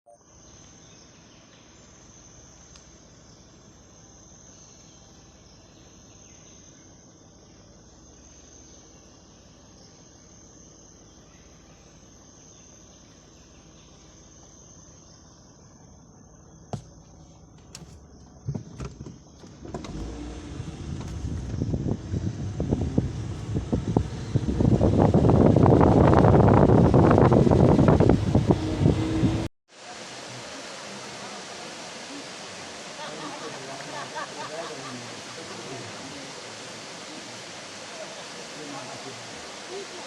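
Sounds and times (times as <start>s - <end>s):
high-pitched insect chorus: 0.2s - 19.6s, 30.2s - 40.0s.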